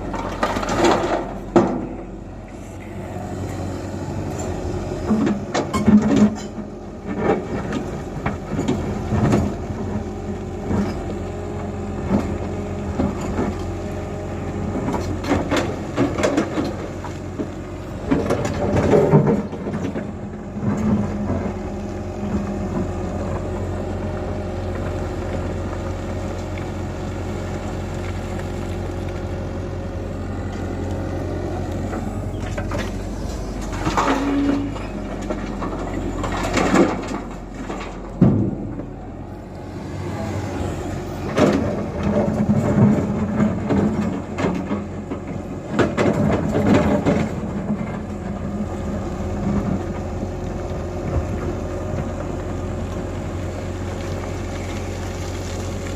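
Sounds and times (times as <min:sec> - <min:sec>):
excavator diesel engine running: 0:00.0 - 0:55.9
sharp knocks and clanks: 0:33.6 - 0:38.9.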